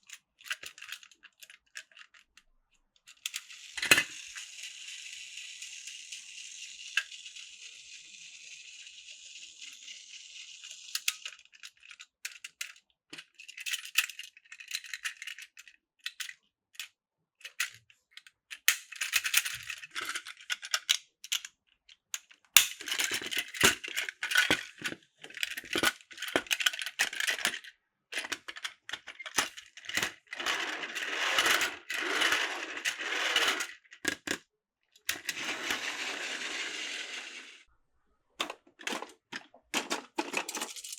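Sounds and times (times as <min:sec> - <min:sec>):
plastic toy pieces rattling: 0:00.1 - 0:02.3, 0:03.1 - 0:16.3, 0:22.6 - 0:34.4, 0:38.4 - 0:40.9.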